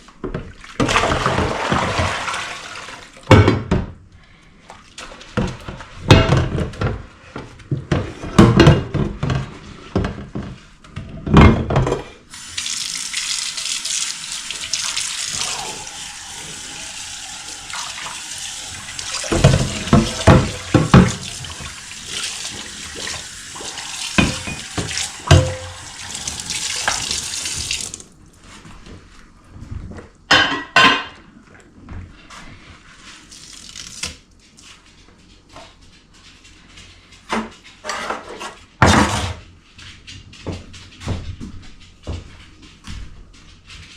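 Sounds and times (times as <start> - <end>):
kitchen tap running: 12.3 - 28.1, 33.3 - 34.2
dishes clattering: 19.1 - 21.3, 24.2 - 25.8
knocks against sink: 24.2 - 25.7.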